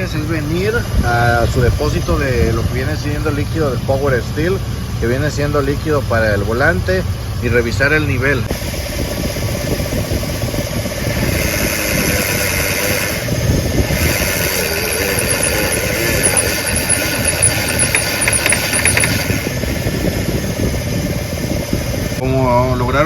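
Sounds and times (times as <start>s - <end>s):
power-steering pump whining: 0.4s - 22.2s
truck engine running: 12.8s - 22.2s
high chirping squeaks: 14.4s - 19.3s.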